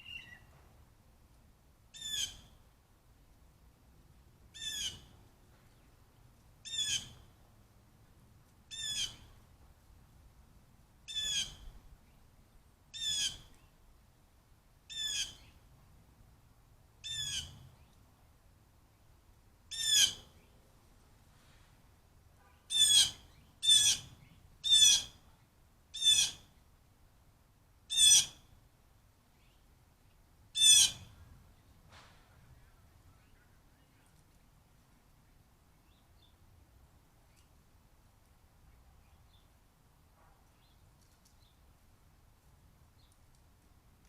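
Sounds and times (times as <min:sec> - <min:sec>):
bird calling: 0:00.0 - 0:00.5.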